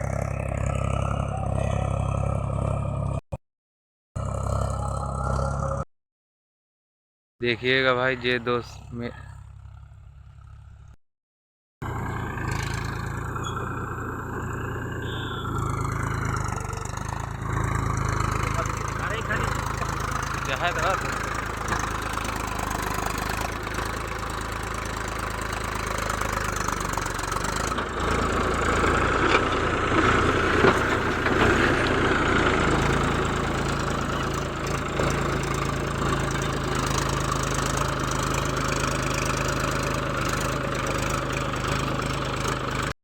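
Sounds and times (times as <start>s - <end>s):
tractor diesel engine running: 0.0s - 3.2s, 11.8s - 43.0s.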